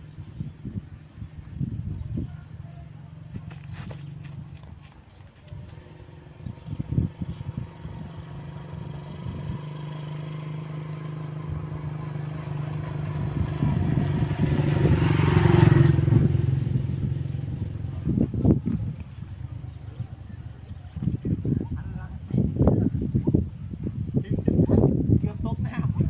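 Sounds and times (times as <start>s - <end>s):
motorcycle engine passing: 2.8s - 4.8s, 5.5s - 21.7s.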